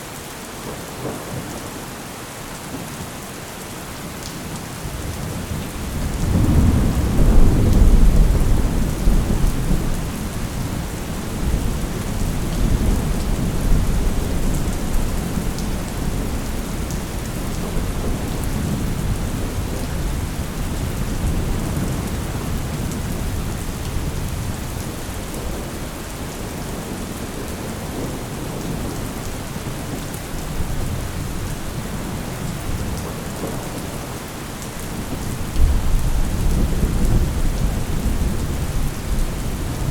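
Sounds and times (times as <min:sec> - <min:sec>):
heavy rain: 0:00.0 - 0:39.9
rolling thunder rumble: 0:04.9 - 0:25.8, 0:34.9 - 0:39.9.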